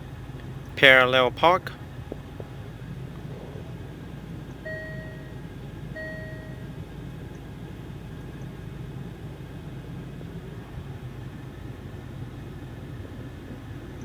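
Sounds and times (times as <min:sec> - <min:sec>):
low cabin hum: 0:00.0 - 0:14.0
short electronic chimes: 0:04.7 - 0:05.4, 0:06.0 - 0:06.6.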